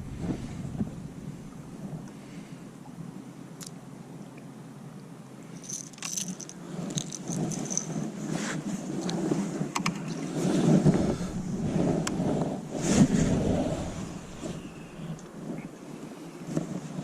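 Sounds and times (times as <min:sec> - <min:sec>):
low rushing noise: 0:00.0 - 0:02.7, 0:10.4 - 0:15.6
light metallic jingling and clicking: 0:05.5 - 0:08.1.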